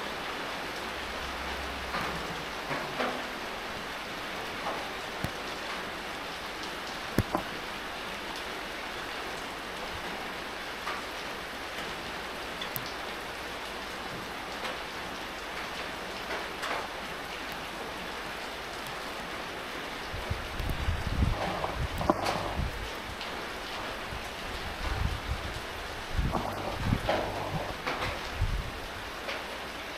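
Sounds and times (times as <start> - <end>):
steady rain falling: 0.0 - 29.9
low rumble: 26.2 - 28.6.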